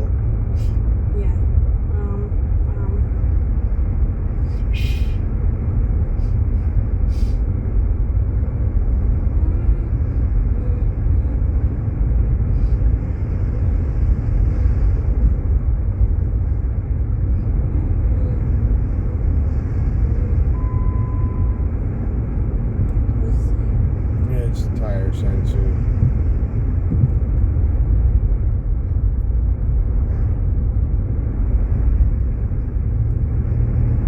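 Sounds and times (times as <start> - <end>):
car road and engine rumble: 0.0 - 34.0
short electronic warning tone: 20.5 - 21.8.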